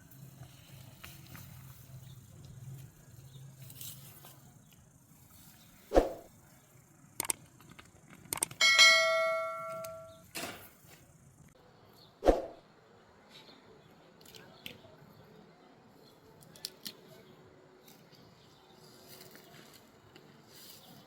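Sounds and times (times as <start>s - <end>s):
metal cookware click: 8.6s - 10.1s
metal cookware ringing: 8.6s - 10.2s.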